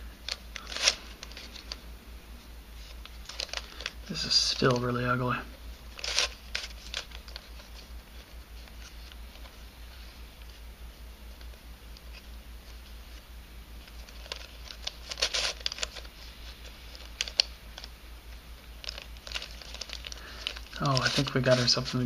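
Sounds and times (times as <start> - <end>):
puzzle pieces clicking and scraping: 14.1 - 16.1.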